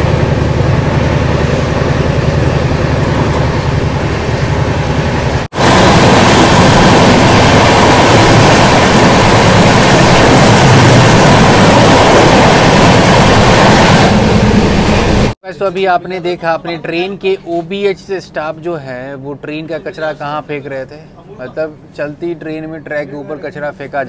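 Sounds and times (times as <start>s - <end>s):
passing train rushing: 0.0s - 15.4s
train coach rumble: 0.0s - 15.4s.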